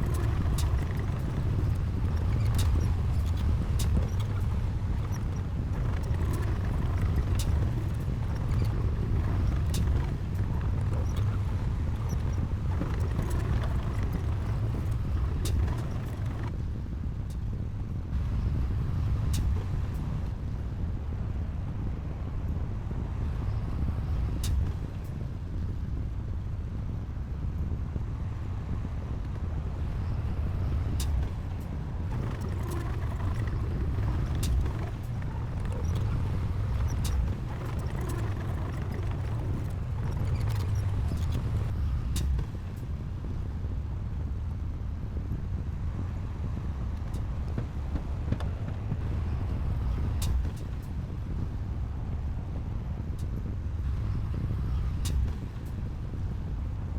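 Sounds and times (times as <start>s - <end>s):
heavy diesel machinery rumbling: 32.1s - 42.4s.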